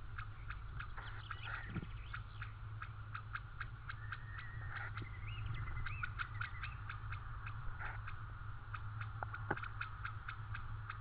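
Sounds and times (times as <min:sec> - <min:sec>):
steady low hum: 0:00.0 - 0:11.0
bird whistling: 0:00.4 - 0:02.6, 0:03.9 - 0:06.9
faint regular ticking: 0:02.0 - 0:05.1, 0:05.8 - 0:11.0.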